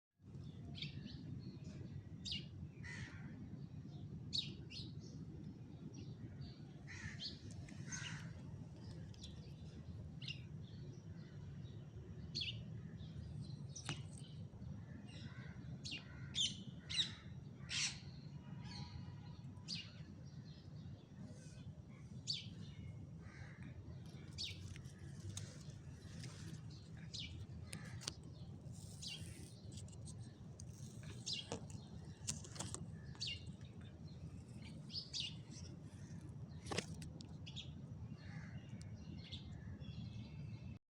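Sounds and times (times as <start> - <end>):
birds chirping: 19.7 - 40.7.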